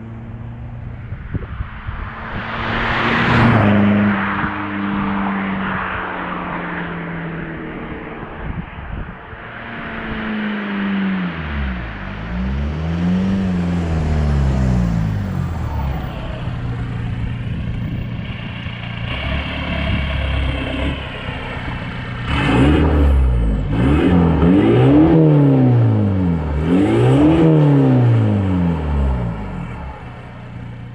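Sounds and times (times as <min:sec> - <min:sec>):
diesel engine revving: 0:09.8 - 0:30.9.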